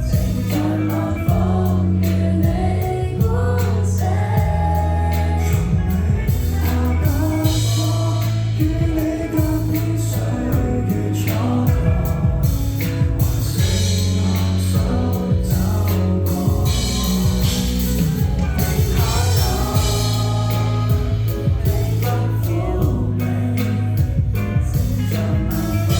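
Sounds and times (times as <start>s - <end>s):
bass notes: 0.0s - 25.9s
person singing: 0.0s - 25.9s
drum hits: 11.7s - 22.1s.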